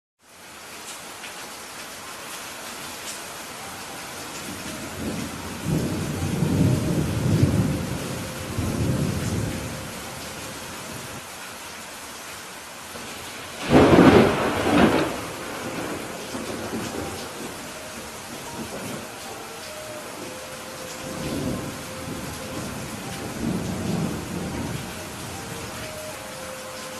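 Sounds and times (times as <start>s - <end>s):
steady rain: 0.2s - 26.9s
thunder rumble: 4.4s - 11.2s, 13.5s - 19.3s, 20.1s - 25.9s
sharp thunderclap: 13.6s - 17.5s.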